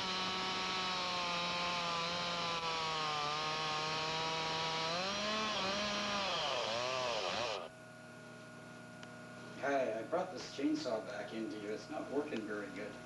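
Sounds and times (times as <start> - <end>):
chainsaw engine running: 0.0 - 7.7.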